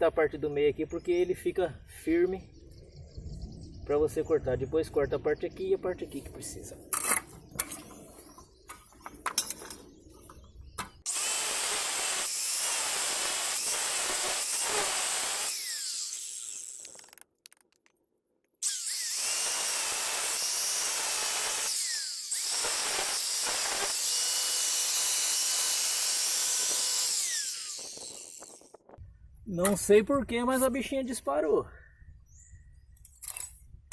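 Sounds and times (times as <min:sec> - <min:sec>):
electric cutter cutting brick: 0:11.1 - 0:17.8, 0:18.6 - 0:28.8.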